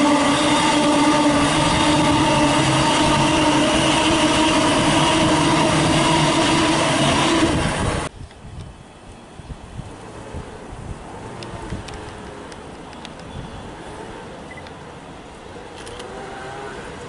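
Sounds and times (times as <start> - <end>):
electric train rumbling past: 0.0 - 12.9
pitched train hum: 0.0 - 17.0
quiet outdoor background: 8.0 - 17.0.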